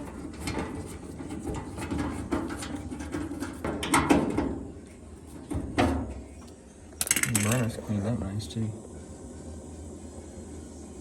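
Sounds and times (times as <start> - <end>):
sharp clicks and knocks: 7.0 - 7.7.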